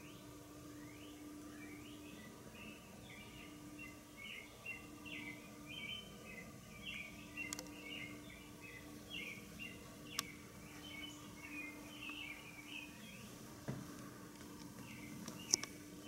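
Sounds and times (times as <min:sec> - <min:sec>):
faint bird chirping: 0:00.0 - 0:13.6, 0:14.4 - 0:16.0
steady low hum: 0:00.0 - 0:16.0
sharp clicks: 0:07.4 - 0:07.8, 0:14.4 - 0:15.8.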